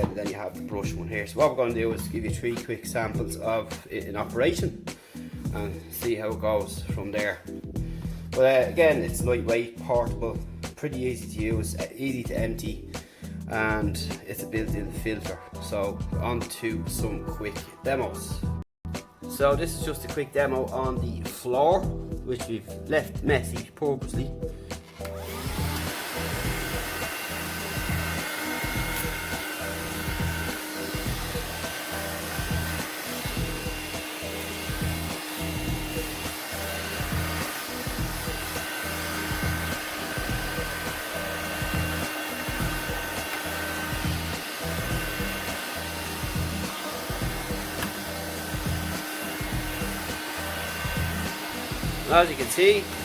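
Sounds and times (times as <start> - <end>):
handheld vacuum cleaner running: 24.8 - 53.0.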